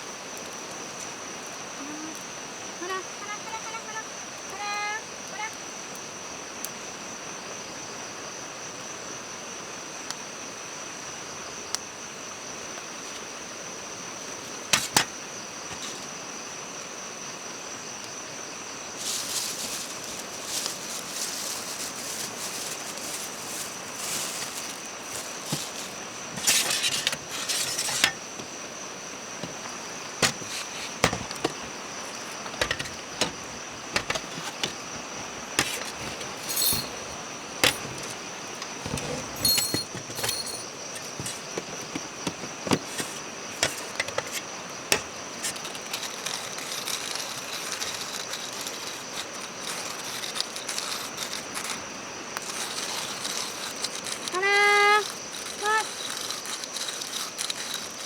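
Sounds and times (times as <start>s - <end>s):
crickets chirring: 0.0s - 58.0s
faint hiss: 0.0s - 58.0s
rustling: 15.7s - 16.1s, 18.9s - 58.0s
sharp clicks and knocks: 29.4s - 45.1s.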